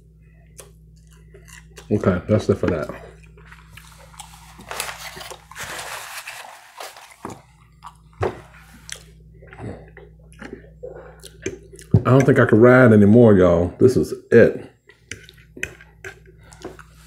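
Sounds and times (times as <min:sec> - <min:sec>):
close chewing: 0:02.8 - 0:05.6, 0:08.8 - 0:11.9.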